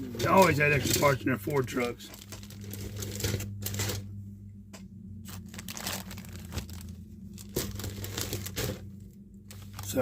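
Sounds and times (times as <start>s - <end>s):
low hum: 0.0s - 10.0s
plastic bags crinkling: 1.8s - 4.0s, 5.3s - 10.0s.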